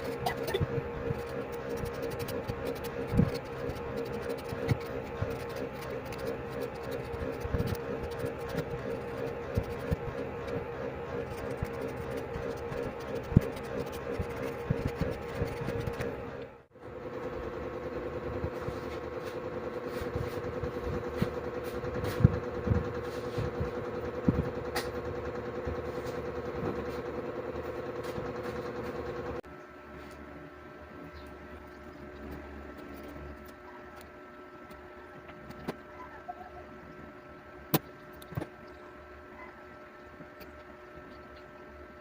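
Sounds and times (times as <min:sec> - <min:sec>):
small motor fluttering: 0:00.0 - 0:16.5
steady electrical hum: 0:00.0 - 0:42.0.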